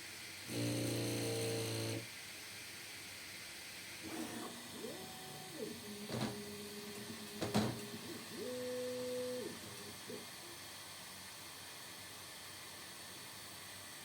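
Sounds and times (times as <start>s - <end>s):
stepper motors whining: 4.0s - 10.3s
sharp knocks: 7.4s - 7.9s.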